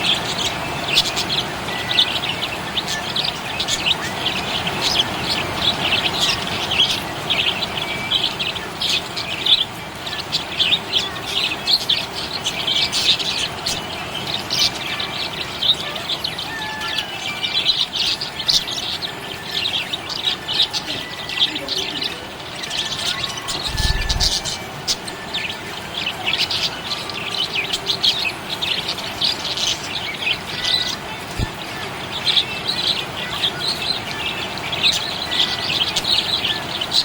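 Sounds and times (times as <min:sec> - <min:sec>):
budgies chirping: 0:00.0 - 0:37.0.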